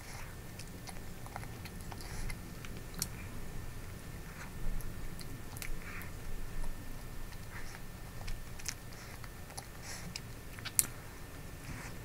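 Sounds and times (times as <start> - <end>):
chewing soft cake: 0.0 - 12.0
moist mouth clicks and smacks: 7.3 - 11.0.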